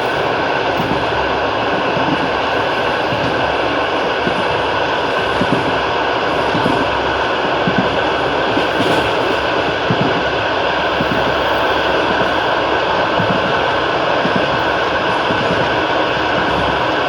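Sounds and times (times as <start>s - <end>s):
train rolling rumble and hiss: 0.0s - 17.0s
wheels knocking on rails: 7.6s - 9.2s, 13.1s - 17.0s.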